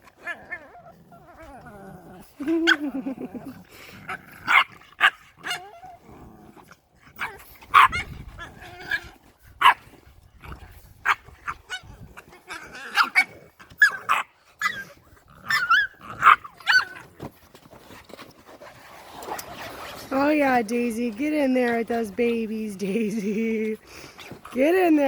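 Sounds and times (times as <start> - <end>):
puppies growling: 0.0 - 20.6
puppies barking and yipping: 2.4 - 3.9, 4.5 - 6.0, 7.2 - 9.9, 11.0 - 17.4.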